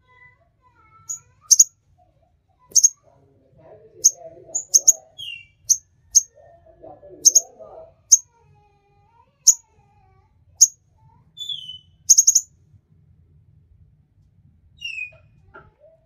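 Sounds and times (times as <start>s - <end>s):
bird chipping calls: 1.1s - 1.7s, 2.7s - 2.9s, 4.0s - 5.0s, 7.3s - 7.5s, 12.1s - 12.4s.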